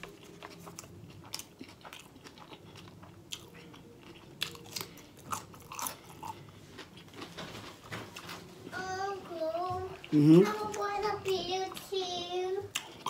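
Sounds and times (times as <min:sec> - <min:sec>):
crunchy chewing of pickle: 0:00.0 - 0:07.3, 0:12.7 - 0:13.0.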